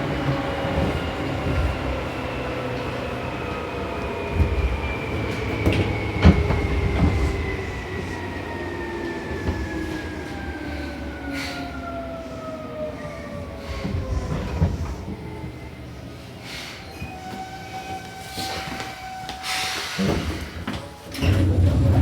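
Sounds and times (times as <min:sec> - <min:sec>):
wheels clacking over rail joints: 0:20.1 - 0:22.0
electric train motor whine: 0:21.1 - 0:22.0.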